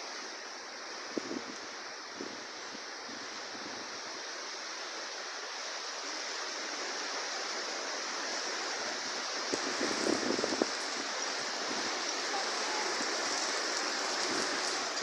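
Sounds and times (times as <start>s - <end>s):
heavy rain hissing: 0.0s - 15.0s
wind buffeting microphone: 8.8s - 15.0s.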